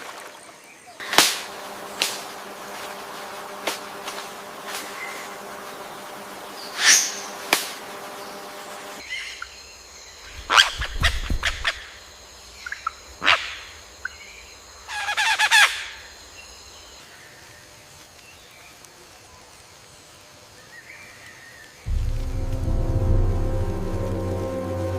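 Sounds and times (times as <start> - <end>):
steady high background tones: 21.9 - 24.9.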